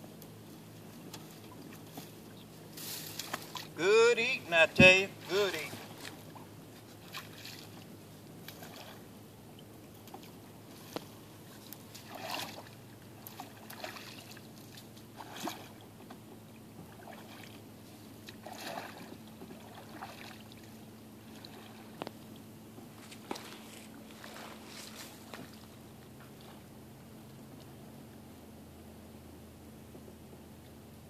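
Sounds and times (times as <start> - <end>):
paddle splashing in water: 1.2 - 9.2, 10.0 - 22.0, 23.0 - 26.7.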